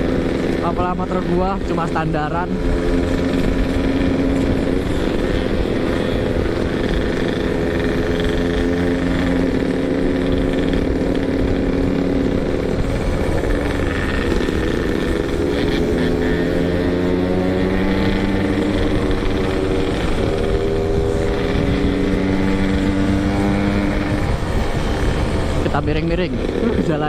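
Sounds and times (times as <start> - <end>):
motorcycle engine running: 0.0 - 27.0
wind rumble on microphone: 17.5 - 26.8.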